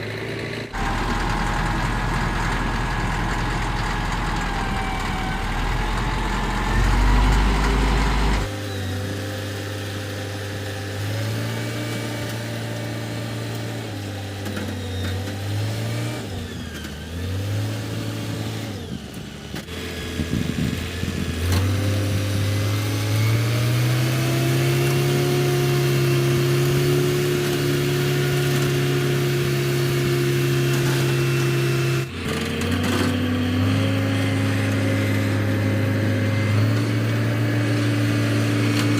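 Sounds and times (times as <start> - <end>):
vehicle engine changing speed: 0.0 - 8.8.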